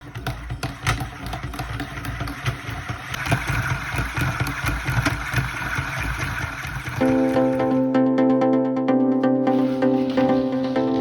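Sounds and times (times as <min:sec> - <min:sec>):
fan whir: 0:00.0 - 0:07.8.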